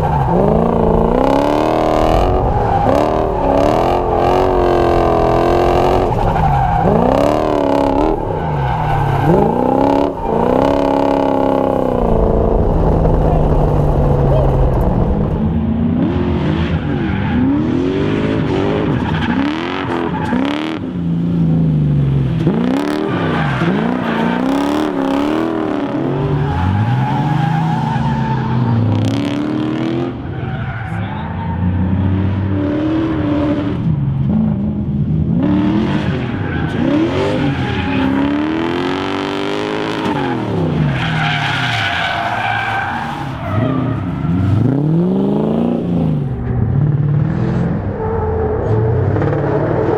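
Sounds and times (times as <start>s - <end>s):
engine revving up and down: 0.0s - 30.3s, 30.9s - 41.1s, 41.7s - 49.9s
tyres squealing: 36.2s - 44.8s.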